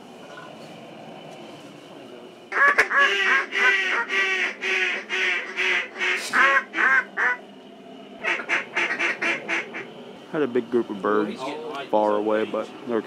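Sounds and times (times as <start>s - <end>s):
duck call quacks: 2.5s - 7.4s, 8.2s - 9.8s.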